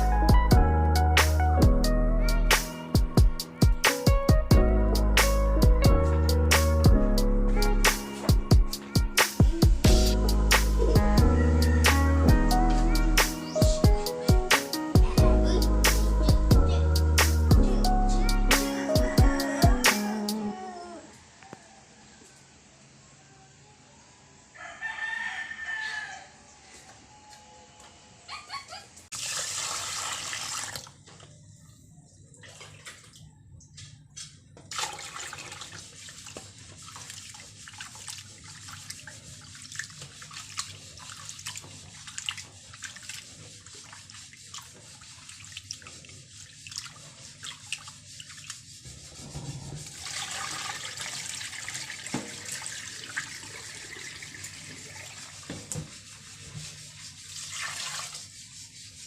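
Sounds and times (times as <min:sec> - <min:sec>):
water running at a sink: 0:29.1 - 0:31.0, 0:34.7 - 0:48.7, 0:49.8 - 0:58.3
rubbing and clicks of washing: 0:32.5 - 0:59.0.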